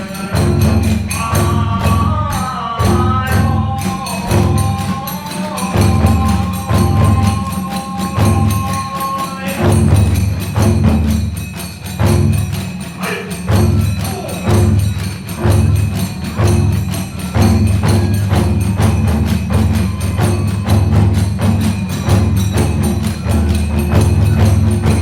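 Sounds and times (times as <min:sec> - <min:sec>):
hand cymbals clashing: 0:00.0 - 0:25.0
taiko drums beating: 0:00.0 - 0:25.0
bamboo flute notes: 0:17.0 - 0:25.0.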